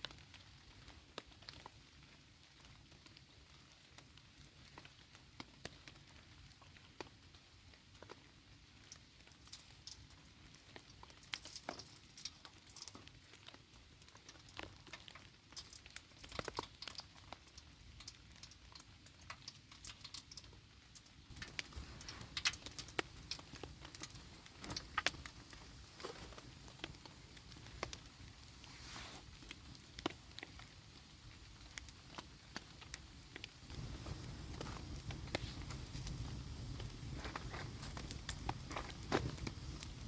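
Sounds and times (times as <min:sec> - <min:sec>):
rain dripping and pattering: 0:00.0 - 0:40.0.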